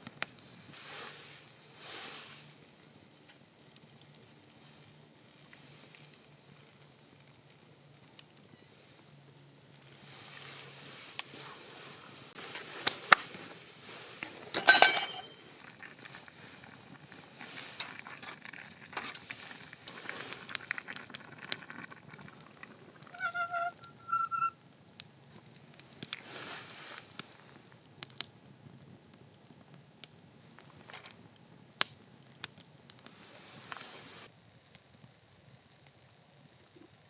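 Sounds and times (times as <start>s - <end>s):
campfire crackling and popping: 0.0s - 37.0s
short squeaky tones: 23.0s - 24.6s.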